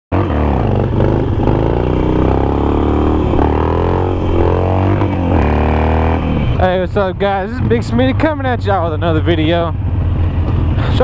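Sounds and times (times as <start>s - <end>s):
motorcycle engine revving through gears: 0.1s - 6.8s.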